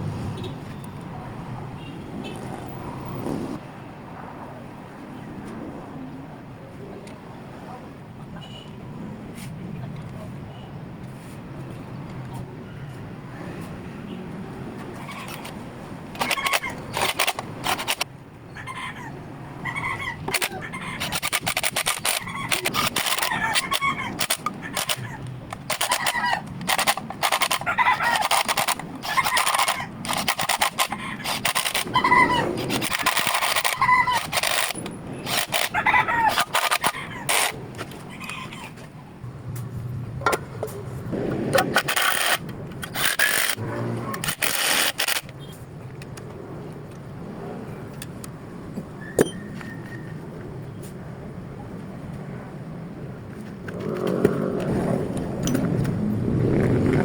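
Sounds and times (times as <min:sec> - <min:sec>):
tools and engine parts clanking: 0:16.2 - 0:18.1, 0:20.3 - 0:38.0, 0:55.4 - 0:56.0
bird calling: 0:22.0 - 0:26.5, 0:30.9 - 0:38.8.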